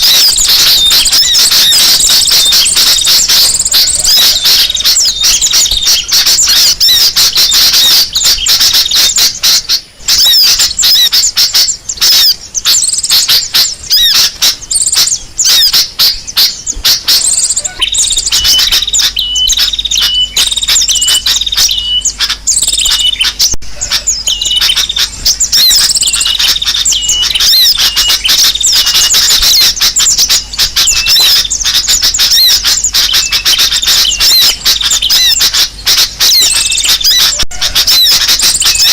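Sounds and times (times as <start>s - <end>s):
small birds chattering: 0.0s - 38.9s.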